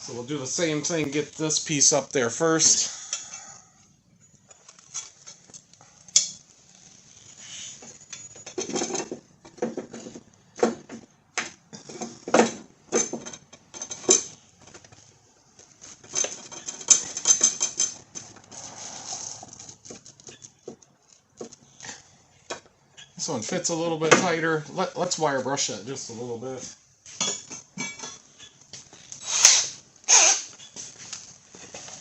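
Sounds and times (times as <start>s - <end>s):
metal parts clinking and scraping: 4.5s - 10.2s, 11.9s - 15.1s, 15.8s - 21.2s.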